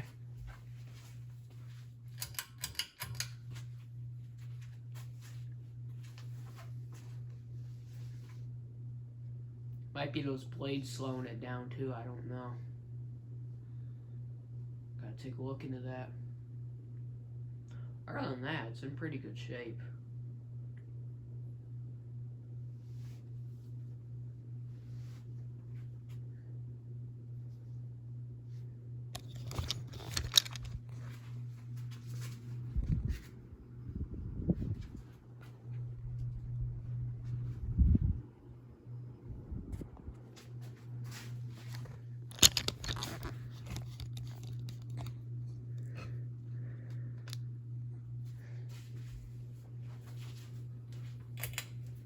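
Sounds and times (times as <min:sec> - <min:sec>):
ceiling fan motor humming: 0:00.0 - 0:52.0
sharp clicks and rattles: 0:02.1 - 0:03.4, 0:29.2 - 0:31.0, 0:41.7 - 0:45.2.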